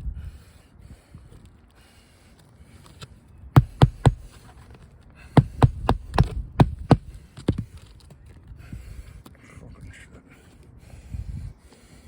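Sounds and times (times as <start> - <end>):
hammer driving nails: 3.6 - 4.4, 5.4 - 7.1.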